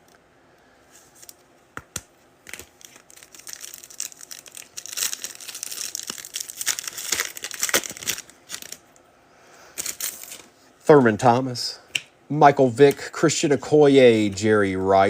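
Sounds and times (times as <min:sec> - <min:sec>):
foil wrapper tearing and crinkling: 0:02.4 - 0:08.8, 0:09.8 - 0:10.5.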